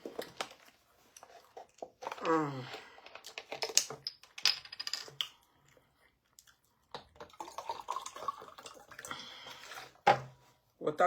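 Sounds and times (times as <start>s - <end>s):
person drinking water: 5.6s - 10.0s.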